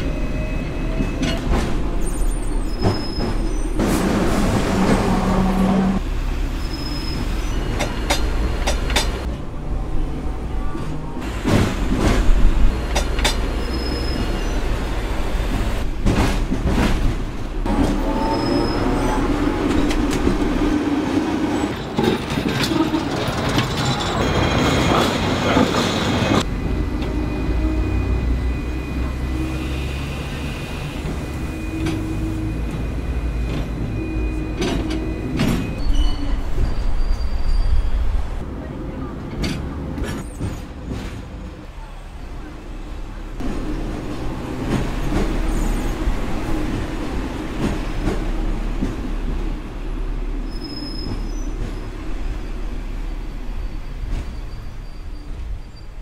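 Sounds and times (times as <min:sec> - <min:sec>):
tram rumbling on rails: 0:00.0 - 0:56.0.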